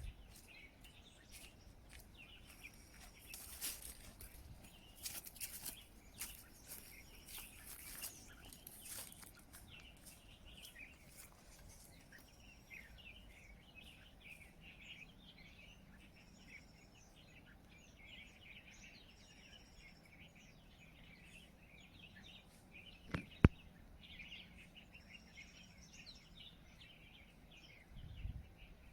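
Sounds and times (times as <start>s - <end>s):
faint rustles: 0.0s - 12.8s
small birds chirping: 0.0s - 28.9s.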